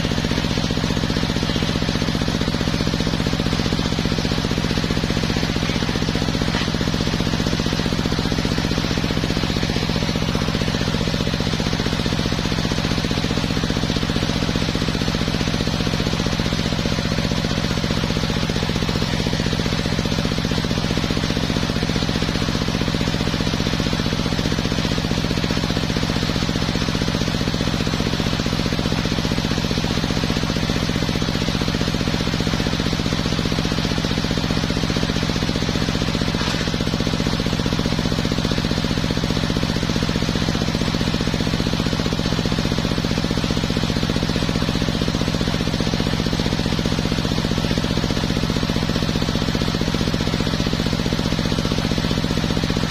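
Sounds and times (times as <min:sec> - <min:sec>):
circular sawmill droning: 0:00.0 - 0:15.2.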